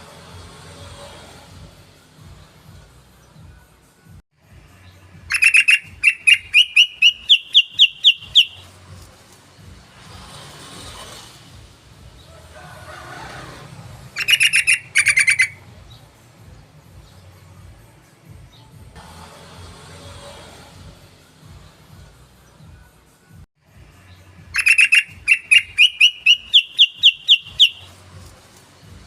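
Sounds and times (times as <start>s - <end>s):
bird chattering song: 5.3s - 8.7s, 14.2s - 16.0s, 24.1s - 28.0s.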